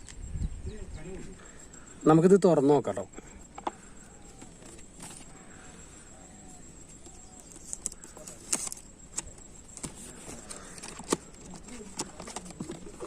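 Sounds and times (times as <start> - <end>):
box being handled and opened: 3.4 - 13.0.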